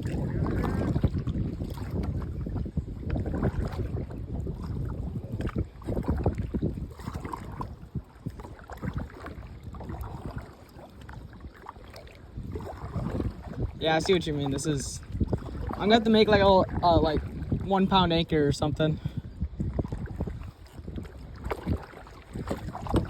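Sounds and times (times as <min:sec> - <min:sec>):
water splashing against kayak: 0:00.0 - 0:23.0
wind buffeting microphone: 0:00.0 - 0:23.0.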